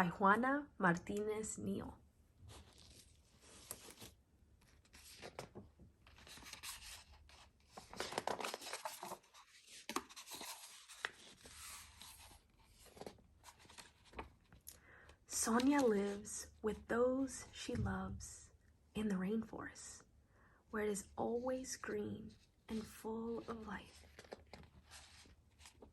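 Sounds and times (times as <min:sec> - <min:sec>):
book pages rustling: 0:02.5 - 0:14.7, 0:15.4 - 0:16.3, 0:22.4 - 0:25.9.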